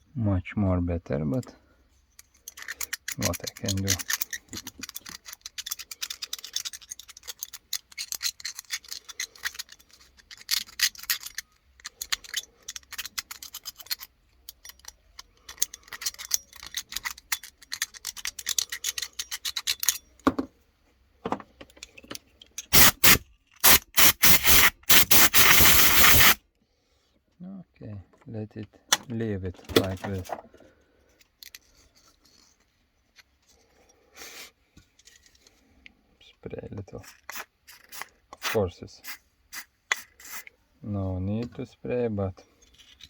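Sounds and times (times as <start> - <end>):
hissing bursts: 22.7 - 26.4.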